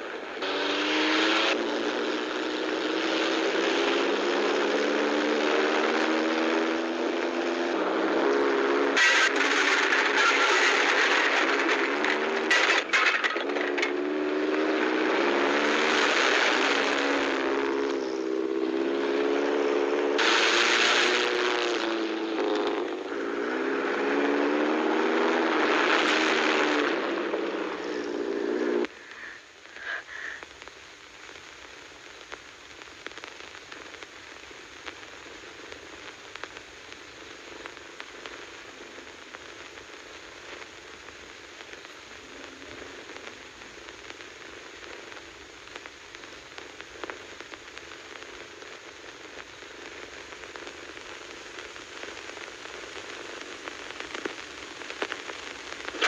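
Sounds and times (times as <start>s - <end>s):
film crackle and hiss: 0.0s - 56.0s
car engine revving: 0.4s - 29.3s
tyres sliding on gravel: 9.0s - 14.0s.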